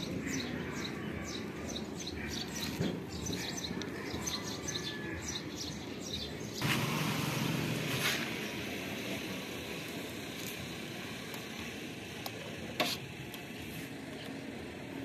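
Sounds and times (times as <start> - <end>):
small birds chirping: 0.0 - 6.7
street background noise: 0.0 - 15.0.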